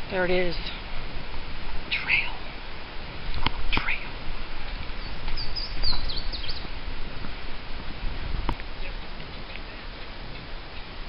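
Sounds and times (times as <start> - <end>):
low rumble on microphone: 0.0 - 11.0
small bird chirping: 1.9 - 2.4, 3.7 - 4.1, 5.0 - 6.7.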